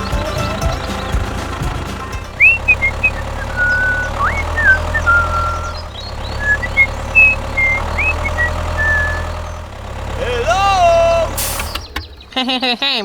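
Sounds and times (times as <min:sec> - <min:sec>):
low engine hum: 0:00.0 - 0:13.0
high chirping glides: 0:02.2 - 0:12.4.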